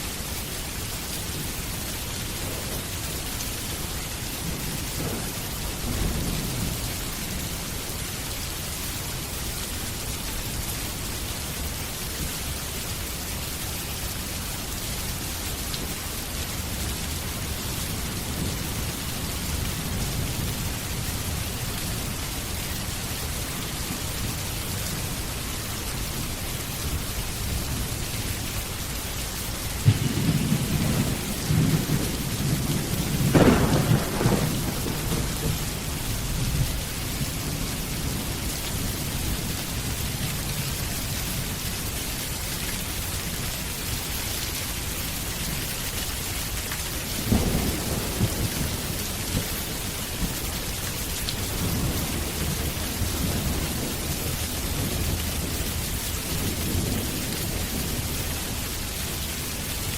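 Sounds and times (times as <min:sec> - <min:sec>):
heavy rain: 0:00.0 - 0:59.9
thunder rumbling and cracking: 0:01.3 - 0:07.9, 0:16.1 - 0:25.1, 0:29.7 - 0:40.6, 0:47.1 - 0:59.0.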